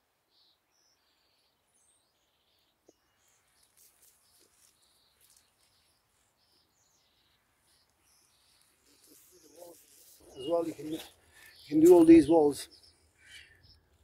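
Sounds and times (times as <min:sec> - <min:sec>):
faint high bird chirps: 0:00.0 - 0:14.0.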